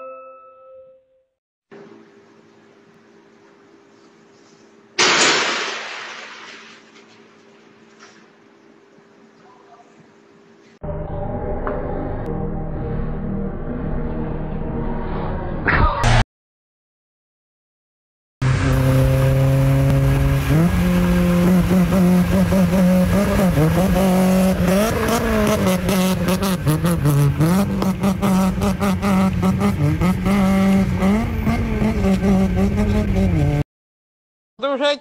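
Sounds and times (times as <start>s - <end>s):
car engine revving high: 18.4s - 33.6s.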